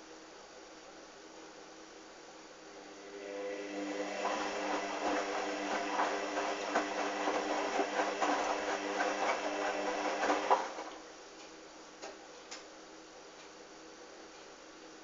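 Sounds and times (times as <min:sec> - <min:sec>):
washing machine motor humming: 0:02.7 - 0:11.1
wet laundry tumbling in drum: 0:04.2 - 0:11.0.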